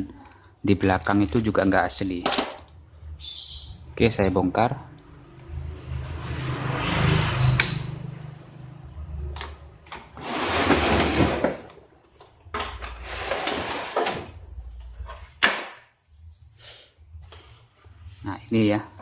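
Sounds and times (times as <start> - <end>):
television casing scraping and rattling: 10.2 - 11.7.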